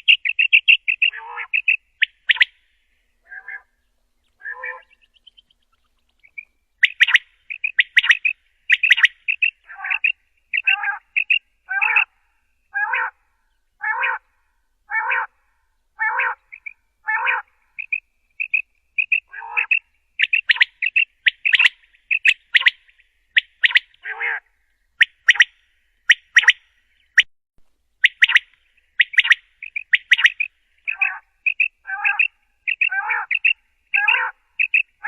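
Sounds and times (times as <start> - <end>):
quail calling: 0.0 - 2.6, 3.2 - 13.2, 13.8 - 14.3, 14.9 - 15.4, 16.0 - 27.3, 28.0 - 35.0.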